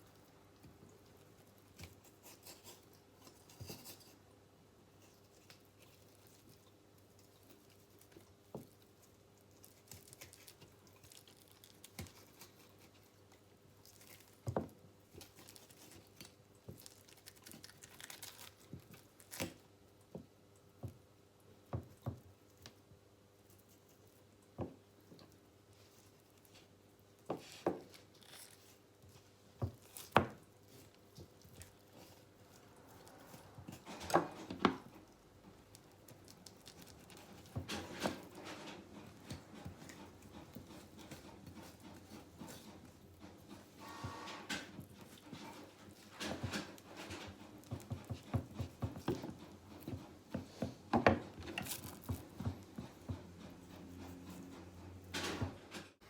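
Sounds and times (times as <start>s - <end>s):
knife scraping and tearing meat: 1.7s - 4.2s, 9.4s - 14.4s, 27.9s - 28.9s.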